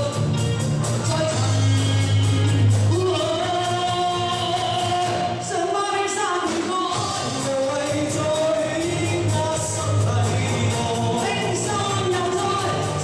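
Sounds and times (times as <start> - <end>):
pop backing track with beat: 0.0 - 13.0
woman singing live: 2.9 - 13.0.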